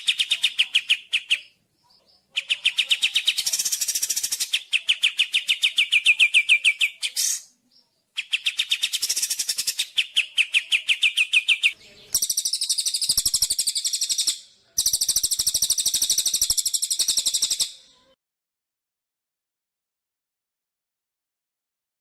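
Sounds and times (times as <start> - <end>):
songbird trilling: 8.3 - 17.8.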